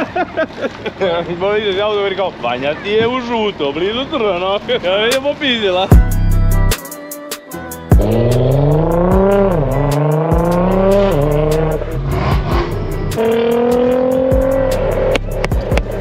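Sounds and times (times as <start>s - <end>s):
car engine accelerating hard: 8.0s - 16.0s.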